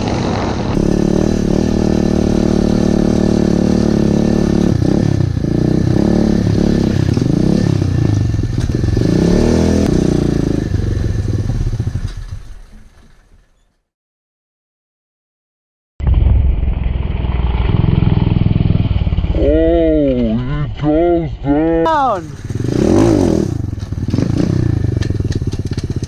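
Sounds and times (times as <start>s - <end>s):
pit bike engine revving: 0.7s - 12.4s, 17.2s - 26.0s.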